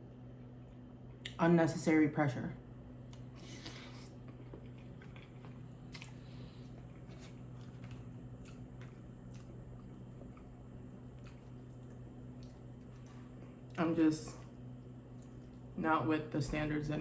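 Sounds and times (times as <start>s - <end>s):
person chewing food: 3.0s - 13.8s, 14.4s - 15.8s.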